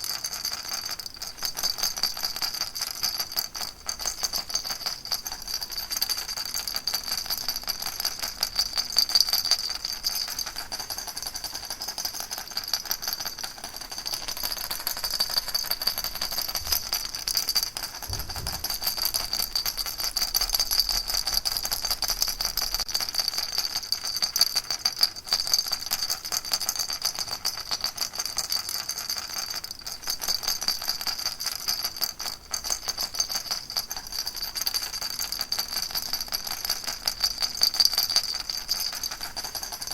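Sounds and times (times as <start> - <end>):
baby rattle shaking: 0.0 - 39.9
soft low bump: 18.0 - 19.4.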